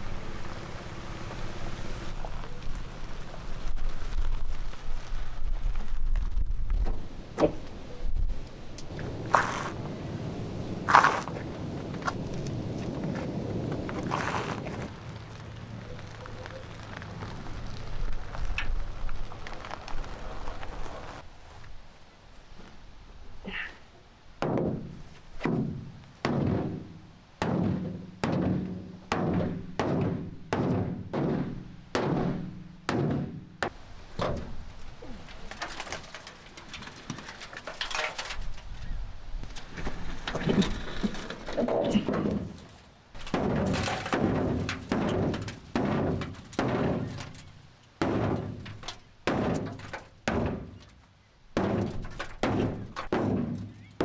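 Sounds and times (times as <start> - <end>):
heavy ringing thunks: 42.0 - 51.0, 51.6 - 54.0.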